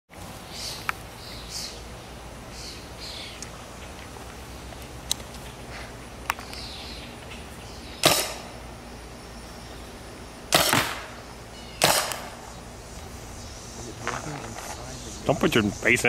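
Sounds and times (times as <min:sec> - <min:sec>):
paintball gun shots: 0:08.0 - 0:08.5, 0:10.5 - 0:11.2, 0:11.8 - 0:12.4.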